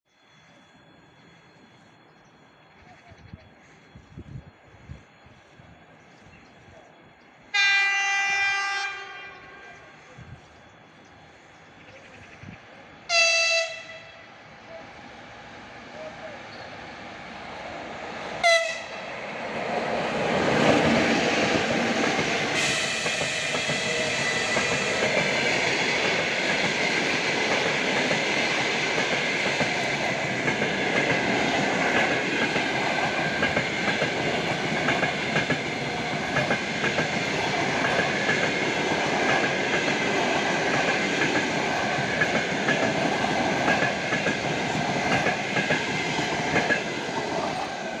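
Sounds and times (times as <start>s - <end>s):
train wheels clattering on rail joints: 19.7s - 48.0s.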